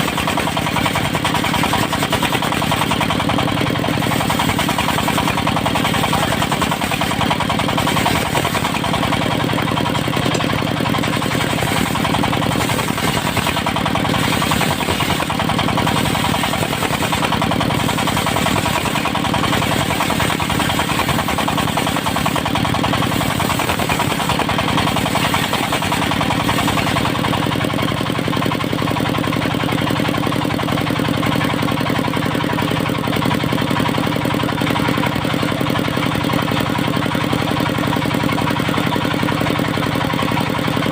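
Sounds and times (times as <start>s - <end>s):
sawmill engine running: 0.0s - 40.9s.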